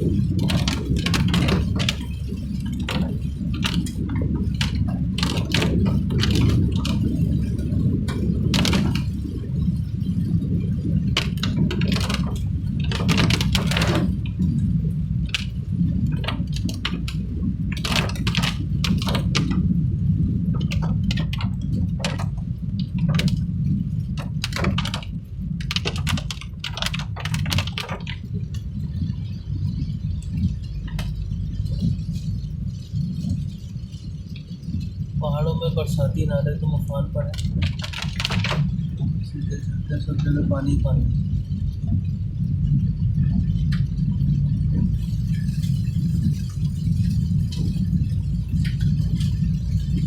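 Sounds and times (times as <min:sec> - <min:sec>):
rattles and knocks over bumps: 0:00.0 - 0:50.0
vehicle engine and tyres rumbling: 0:00.0 - 0:50.0.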